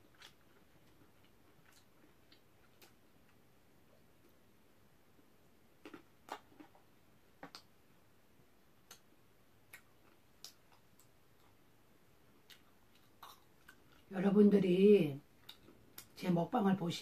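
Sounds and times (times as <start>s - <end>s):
quiet chewing mouth clicks: 0.1s - 3.4s, 9.7s - 11.6s, 15.4s - 16.2s.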